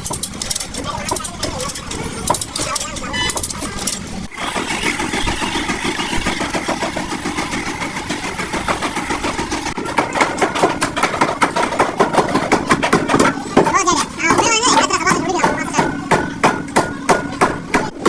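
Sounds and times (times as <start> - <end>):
engine pulsing: 0.0 - 18.0
regular sharp knocks: 4.4 - 18.0.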